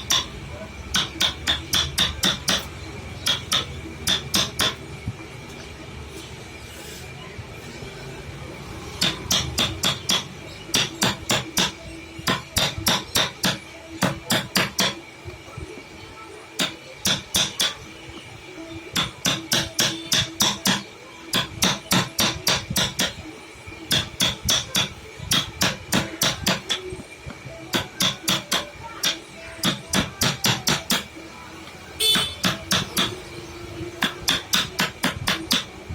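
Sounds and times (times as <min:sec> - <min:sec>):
hammer tapping on wood carving: 0:00.0 - 0:00.3, 0:00.9 - 0:04.8, 0:09.0 - 0:15.0, 0:16.6 - 0:17.8, 0:19.0 - 0:23.2, 0:23.9 - 0:26.9, 0:27.7 - 0:31.1, 0:32.0 - 0:33.2, 0:34.0 - 0:35.7.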